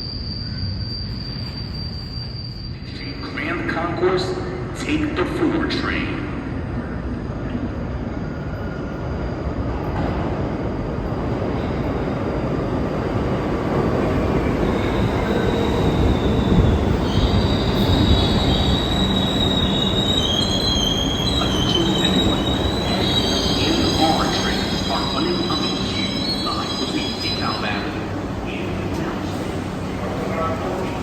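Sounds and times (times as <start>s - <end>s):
high squeal of wheels and brakes: 0.0s - 4.5s, 14.0s - 31.0s
subway train rumble: 0.0s - 31.0s.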